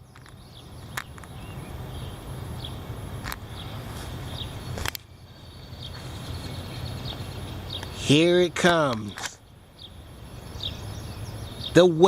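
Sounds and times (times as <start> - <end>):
wind buffeting microphone: 0.0 - 11.9
sharp clicks: 4.8 - 5.1.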